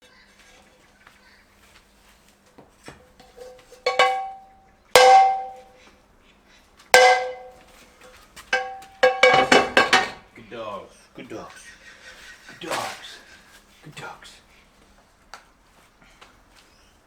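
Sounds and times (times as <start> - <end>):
metal bowls clanking and ringing: 3.2 - 5.7, 7.0 - 7.6, 8.6 - 10.2.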